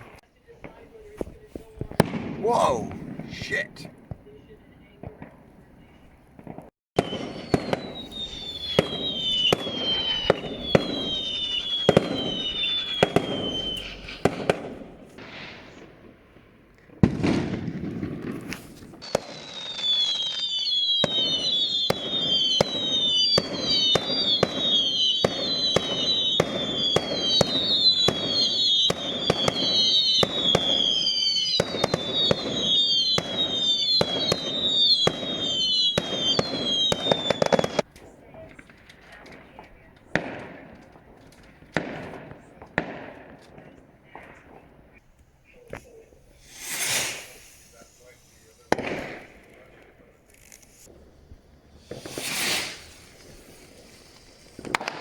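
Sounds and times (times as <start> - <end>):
fireworks bangs: 0.0 - 55.0
fireworks whistles falling in pitch: 7.0 - 15.9, 17.0 - 37.8, 45.6 - 49.6, 50.3 - 55.0.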